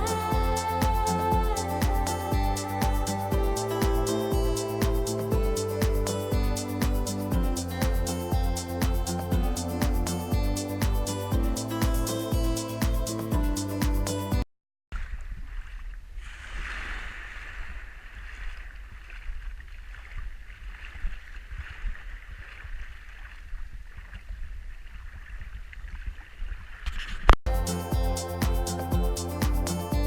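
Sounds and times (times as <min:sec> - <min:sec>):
steady rushing noise: 0:00.0 - 0:14.4, 0:27.5 - 0:30.0.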